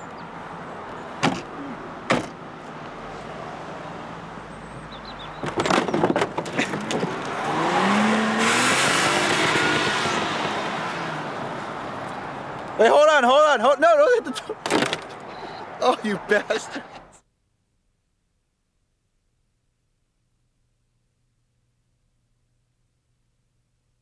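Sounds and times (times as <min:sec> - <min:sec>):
car doors banging shut: 0:01.2 - 0:02.4, 0:05.3 - 0:07.4, 0:14.6 - 0:15.1
knocks and bangs: 0:02.1 - 0:02.4
car engine revving: 0:06.8 - 0:12.5.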